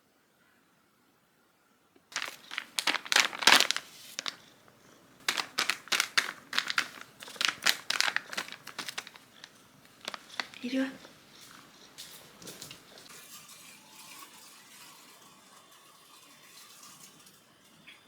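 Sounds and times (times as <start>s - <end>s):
crinkling and crumpling: 2.1s - 13.1s.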